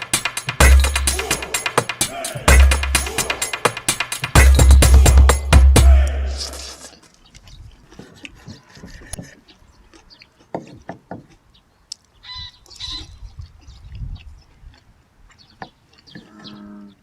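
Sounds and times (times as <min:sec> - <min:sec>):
background music: 0:00.0 - 0:06.9.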